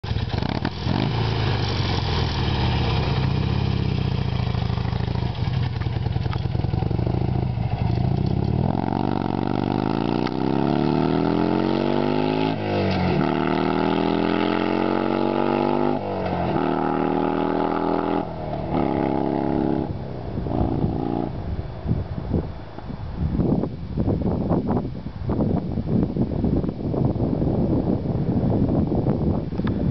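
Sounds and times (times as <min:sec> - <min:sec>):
motorcycle idling and revving: 0:00.0 - 0:23.4.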